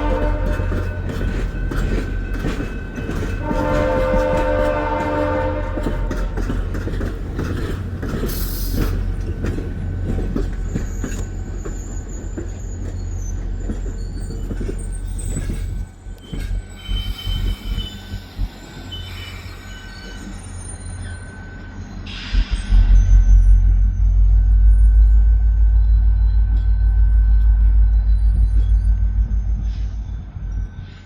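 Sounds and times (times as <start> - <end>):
wheels clacking over rail joints: 0.0 - 18.1
train rumble: 0.0 - 31.0
thin wheel squeal: 10.6 - 22.6.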